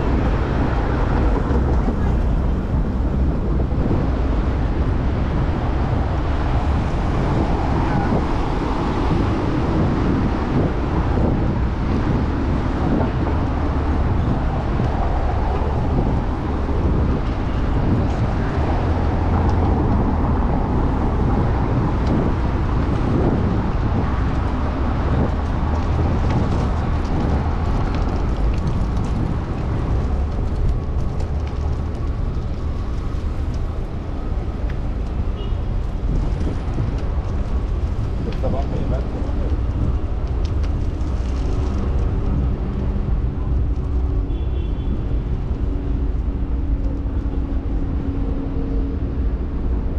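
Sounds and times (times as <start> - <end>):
passing road traffic: 0.0 - 49.9
wind on microphone: 0.0 - 49.9.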